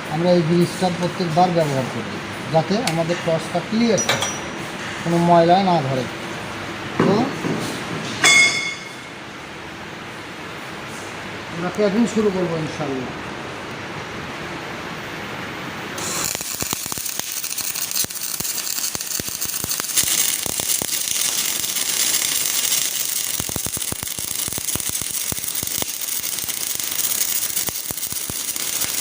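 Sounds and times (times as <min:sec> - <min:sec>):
steady hiss: 0:09.9 - 0:29.0
welding arc crackling: 0:15.0 - 0:29.0.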